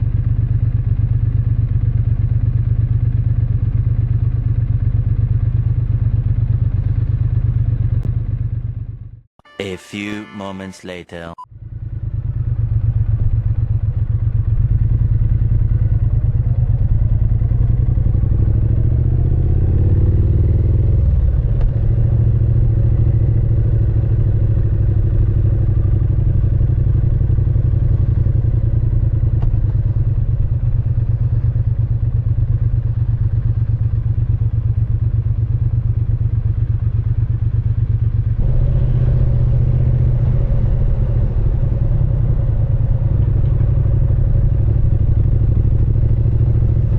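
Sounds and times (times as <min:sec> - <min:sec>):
motorcycle engine accelerating: 0:00.0 - 0:09.2, 0:11.5 - 0:46.9.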